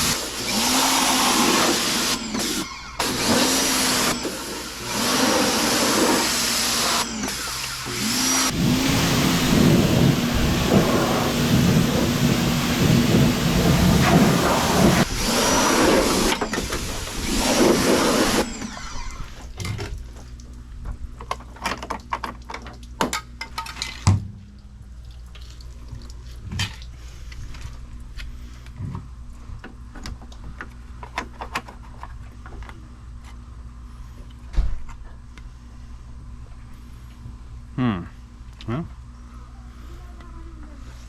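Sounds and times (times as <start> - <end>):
pressure washer spraying: 0.0 - 18.8.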